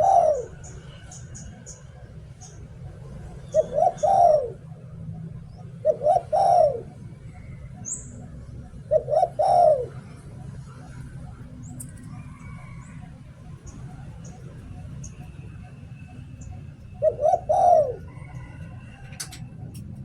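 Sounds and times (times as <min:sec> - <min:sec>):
dove cooing: 0:00.0 - 0:01.1, 0:02.5 - 0:20.0
small birds chirping: 0:10.6 - 0:18.9.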